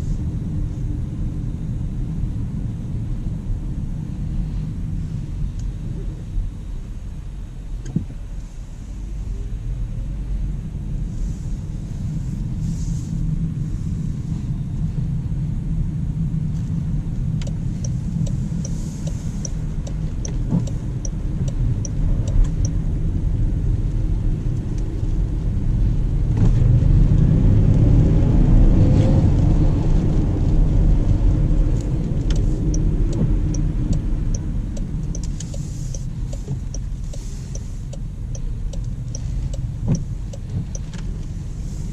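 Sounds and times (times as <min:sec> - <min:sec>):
road and tyre rumble: 0:00.0 - 0:41.9
turn signal ticking: 0:17.1 - 0:23.0, 0:31.3 - 0:41.9.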